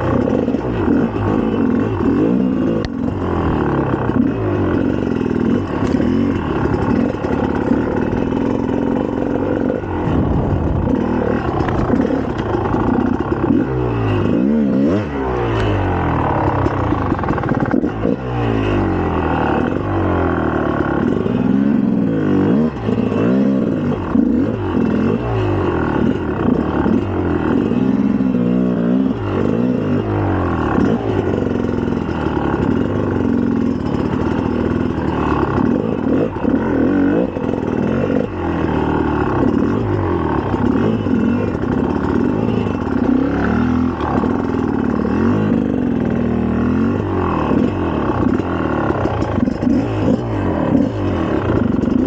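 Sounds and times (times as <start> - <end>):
two-stroke motorcycle engine revving: 0.0 - 52.0.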